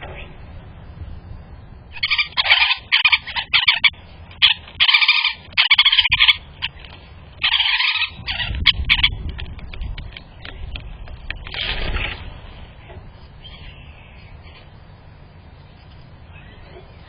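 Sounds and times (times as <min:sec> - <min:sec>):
bird harsh raspy calls: 0:01.9 - 0:06.8, 0:07.4 - 0:09.2, 0:13.4 - 0:14.7, 0:16.2 - 0:17.0.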